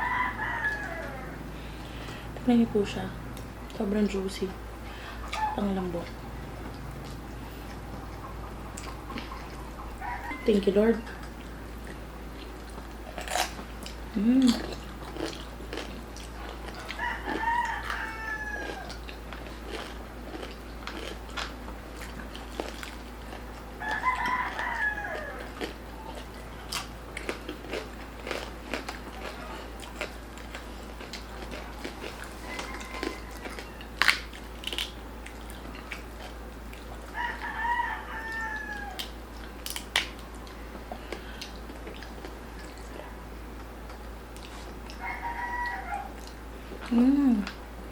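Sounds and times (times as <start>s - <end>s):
rooster crowing: 0.0s - 1.6s, 9.6s - 11.2s, 16.7s - 19.0s, 23.8s - 26.1s, 32.2s - 34.1s, 37.1s - 39.1s, 45.0s - 46.2s
clicks and smacks of eating: 6.1s - 9.7s, 11.1s - 37.5s, 38.7s - 43.0s, 43.6s - 45.0s, 46.1s - 47.7s.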